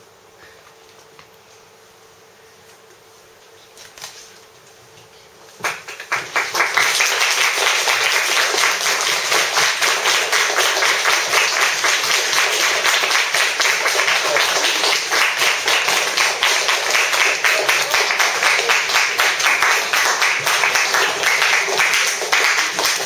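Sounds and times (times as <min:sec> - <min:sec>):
audience applauding: 0:05.6 - 0:23.0.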